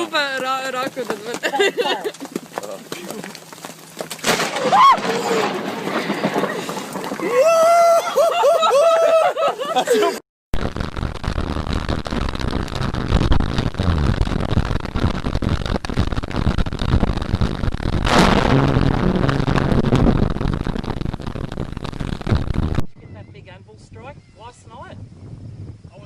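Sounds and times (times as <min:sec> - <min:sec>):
thunderclap: 0:04.2 - 0:07.5, 0:10.6 - 0:23.0
thunder rumbling: 0:04.2 - 0:07.6, 0:12.3 - 0:23.0.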